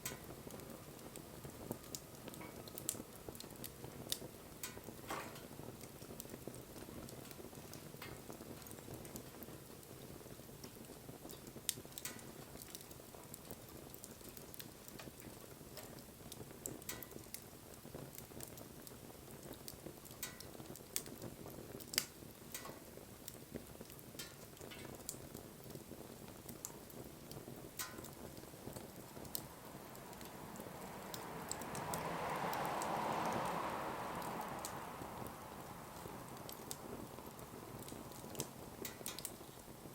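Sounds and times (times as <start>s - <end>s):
fire popping and snapping: 0.0s - 39.9s
wood fire crackling: 0.0s - 39.9s
loud rushing noise: 30.8s - 36.3s.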